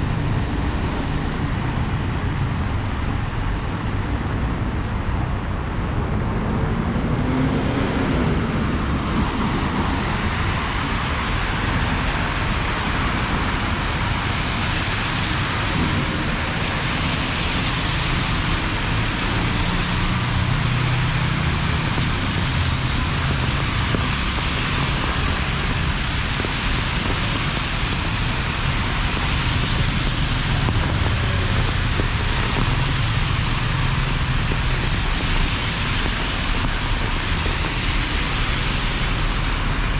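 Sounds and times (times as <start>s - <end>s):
road traffic rumbling: 0.0s - 39.9s
heavy rain falling: 7.5s - 39.9s.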